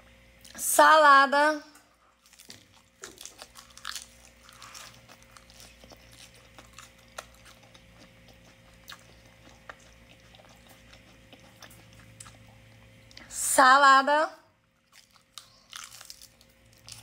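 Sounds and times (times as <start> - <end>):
crunching lettuce: 2.1 - 12.9, 14.8 - 17.0.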